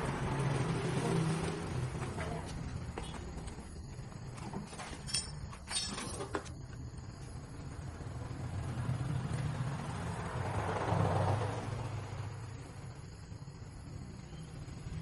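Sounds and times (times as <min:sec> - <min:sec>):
vehicle rumble: 0:00.0 - 0:15.0
light metallic clinks: 0:04.6 - 0:06.7.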